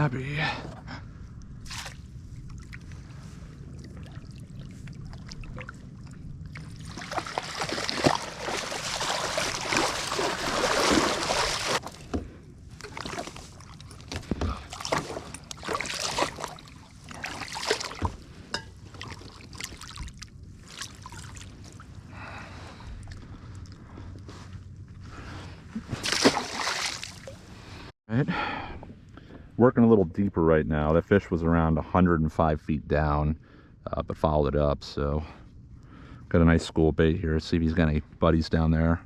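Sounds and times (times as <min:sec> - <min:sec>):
water splashing at kayak: 0:03.9 - 0:12.2, 0:12.8 - 0:18.2, 0:26.0 - 0:27.4.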